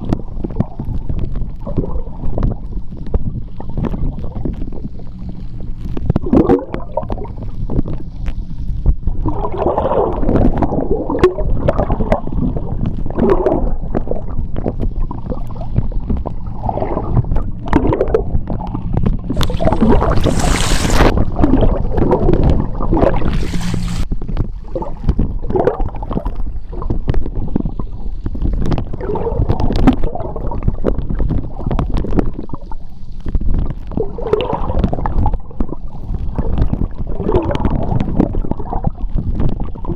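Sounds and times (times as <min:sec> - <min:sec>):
underwater rumble: 0:00.0 - 0:39.9
water gurgling and bubbling: 0:00.0 - 0:39.9
bright hissing underwater: 0:19.3 - 0:24.0.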